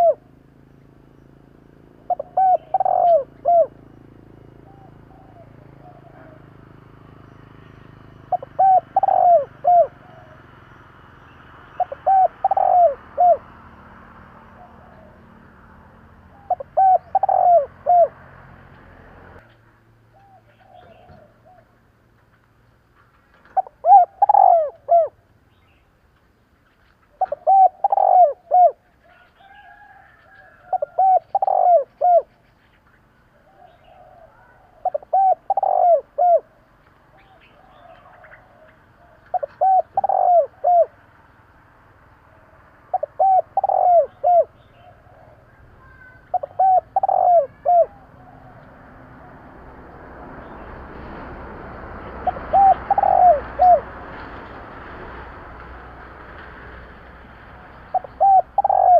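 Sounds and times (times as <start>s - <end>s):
dove cooing: 0.0s - 0.5s, 1.9s - 7.2s, 8.2s - 10.7s, 11.6s - 18.4s, 20.1s - 21.8s, 23.4s - 25.2s, 27.1s - 32.6s, 33.3s - 41.2s, 42.2s - 49.7s, 52.0s - 54.5s, 57.5s - 58.9s.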